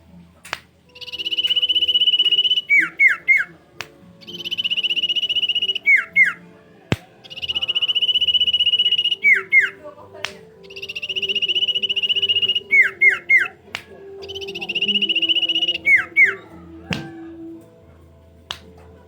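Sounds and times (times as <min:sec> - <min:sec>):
bird song trill and whistles: 0:00.9 - 0:09.8, 0:10.6 - 0:17.6.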